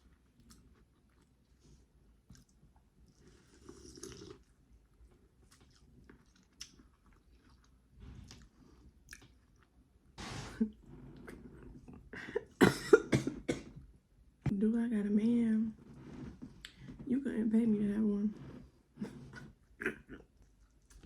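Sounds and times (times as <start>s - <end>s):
person chewing: 2.2s - 9.7s.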